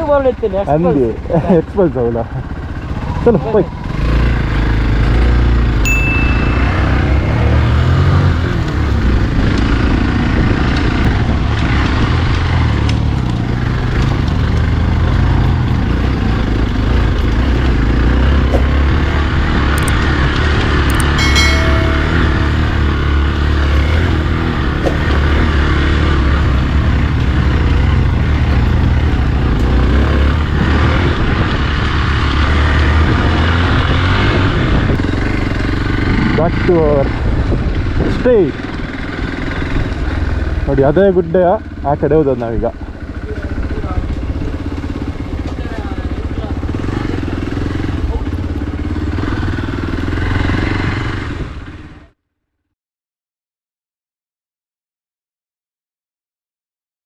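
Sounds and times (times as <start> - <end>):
motorcycle engine rumbling: 0.0 - 52.1
motorcycle engine pulsing: 16.4 - 29.6
wind noise: 30.4 - 36.2.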